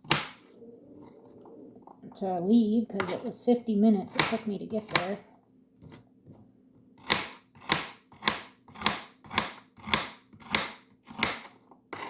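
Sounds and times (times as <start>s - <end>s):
knife chopping on cutting board: 0.0s - 0.4s, 4.1s - 5.2s, 7.0s - 12.0s.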